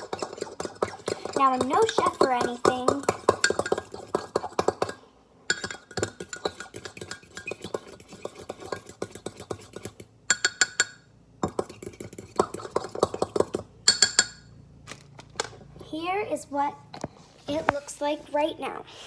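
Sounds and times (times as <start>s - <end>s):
fork clinking against mug: 3.0s - 14.4s.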